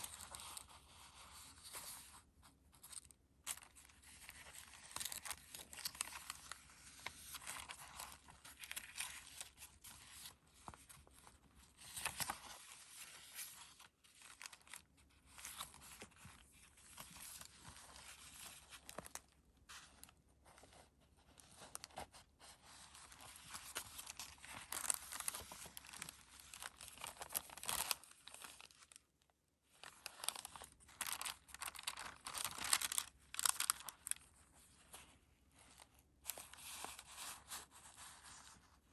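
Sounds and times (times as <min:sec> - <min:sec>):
paper pages rustling and crinkling: 0:00.0 - 0:38.9.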